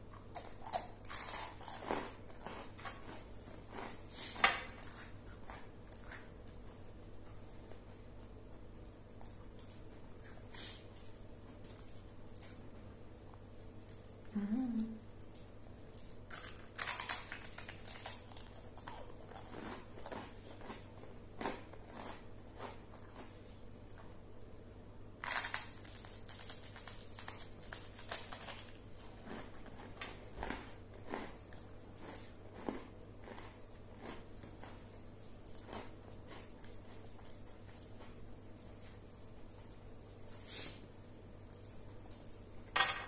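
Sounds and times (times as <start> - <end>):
crunching of toast being chewed: 0.1 - 12.6, 15.2 - 24.2, 25.2 - 39.9.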